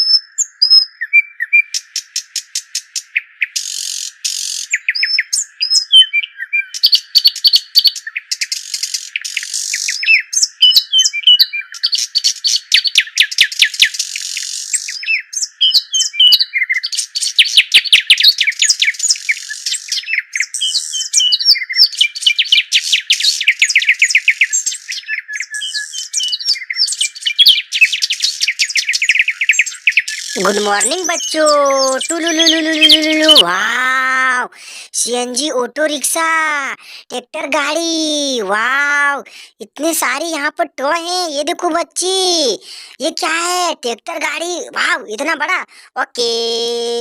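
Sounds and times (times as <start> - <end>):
songbirds chirping and trilling: 0.0 - 35.9.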